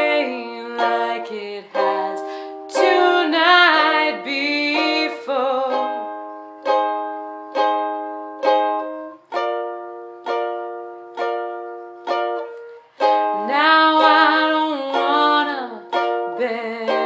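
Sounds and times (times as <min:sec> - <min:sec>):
ukulele strummed: 0:00.0 - 0:17.0.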